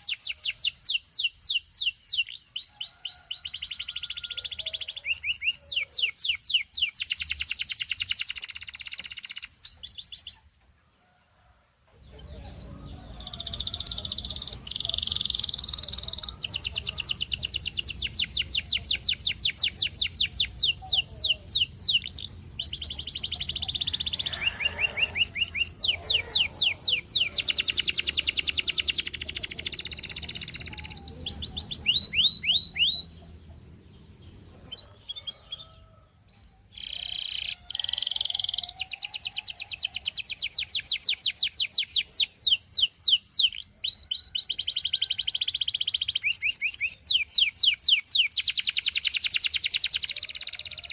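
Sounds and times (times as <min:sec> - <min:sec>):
canary singing trills: 0:00.0 - 0:10.6, 0:12.0 - 0:50.9.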